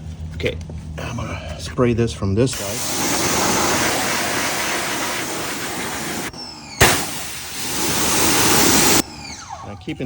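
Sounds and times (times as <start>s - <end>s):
pressure washer water jet hissing: 2.6s - 9.4s
sharp click: 6.8s - 7.3s.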